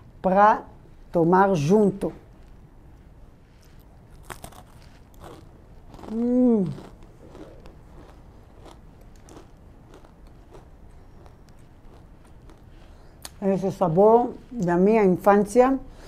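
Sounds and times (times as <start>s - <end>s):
cracker crunching: 2.3s - 13.4s
person humming mmm: 6.0s - 7.6s.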